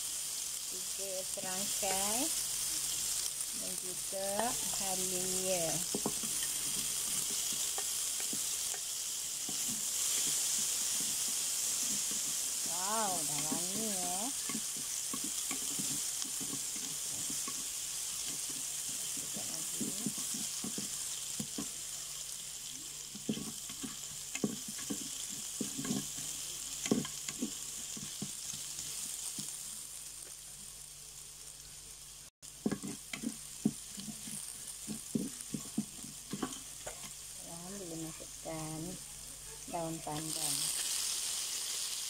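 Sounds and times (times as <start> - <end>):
spices sizzling in butter: 0.0 - 42.0
wooden spatula knocking a pot: 23.1 - 26.2, 26.8 - 28.4, 32.6 - 37.1.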